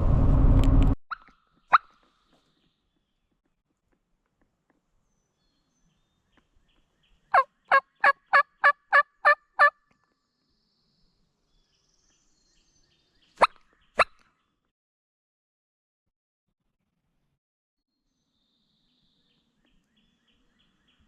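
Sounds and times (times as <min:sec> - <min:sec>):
turkey yelps: 0:07.3 - 0:09.7.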